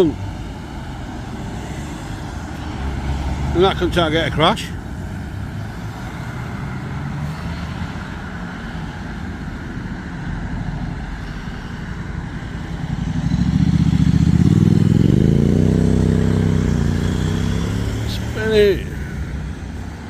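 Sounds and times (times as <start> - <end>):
car engine revving: 12.8 - 19.9.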